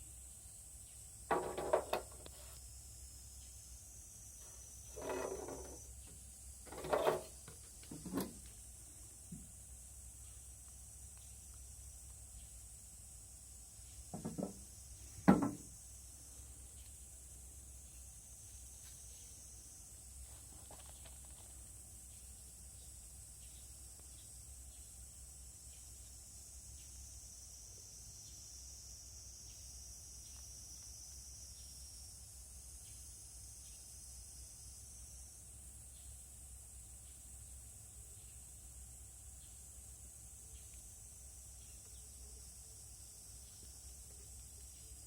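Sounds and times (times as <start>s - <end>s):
insect chorus: 0.0s - 45.0s
hard objects knocking: 1.3s - 2.2s, 14.1s - 14.6s, 15.3s - 15.7s.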